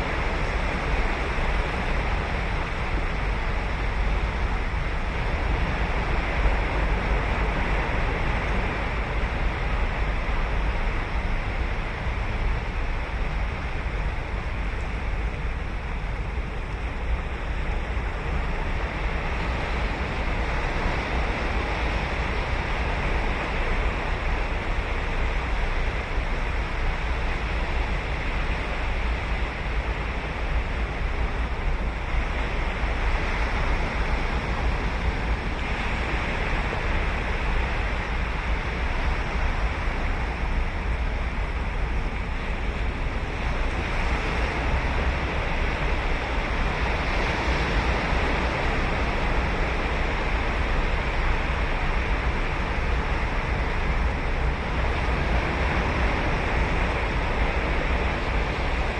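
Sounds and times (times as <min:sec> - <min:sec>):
wind on microphone: 0:00.0 - 0:58.9
ocean surf breaking on beach: 0:15.9 - 0:58.9.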